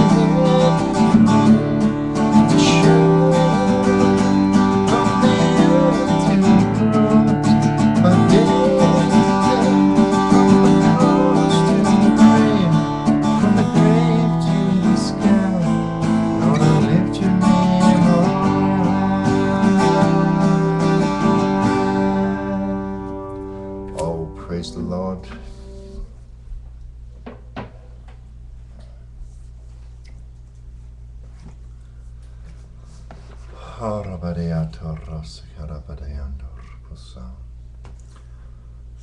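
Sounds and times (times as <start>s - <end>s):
strummed acoustic guitar music: 0.0s - 26.1s.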